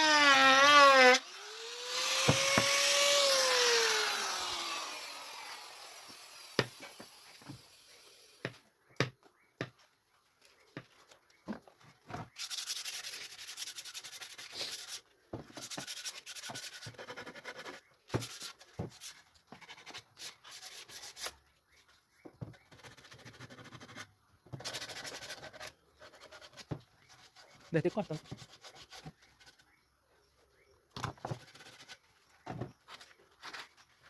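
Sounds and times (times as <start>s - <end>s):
sanding wood: 12.4s - 15.0s, 15.6s - 19.1s.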